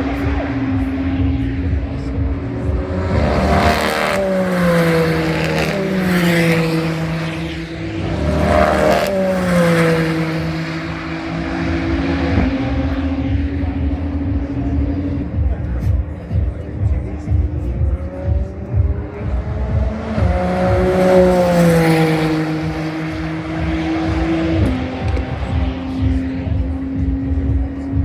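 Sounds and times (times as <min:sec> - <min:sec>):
race cars passing at speed: 0:00.0 - 0:28.0
steady engine drone: 0:00.0 - 0:28.0.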